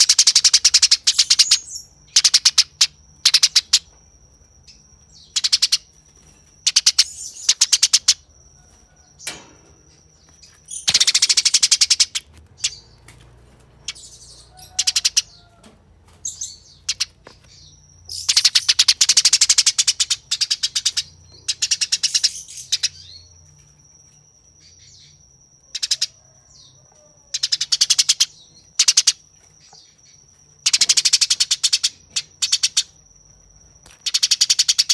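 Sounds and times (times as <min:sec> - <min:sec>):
sparrow harsh chattering calls: 0:00.0 - 0:03.9, 0:04.7 - 0:06.0, 0:06.6 - 0:08.3, 0:09.2 - 0:13.0, 0:13.8 - 0:15.5, 0:16.2 - 0:23.2, 0:25.7 - 0:26.2, 0:27.3 - 0:29.9, 0:30.6 - 0:33.0.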